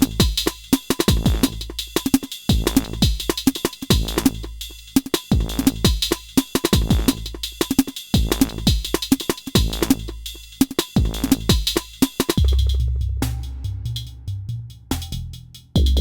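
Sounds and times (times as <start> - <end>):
kick drums: 0.0 - 4.6, 5.3 - 7.5, 8.2 - 10.2, 11.0 - 12.8.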